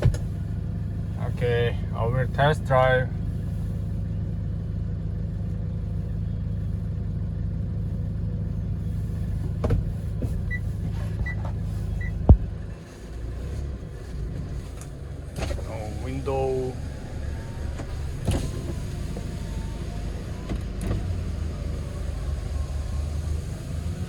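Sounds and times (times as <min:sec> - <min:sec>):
truck engine idling: 0:00.0 - 0:24.0.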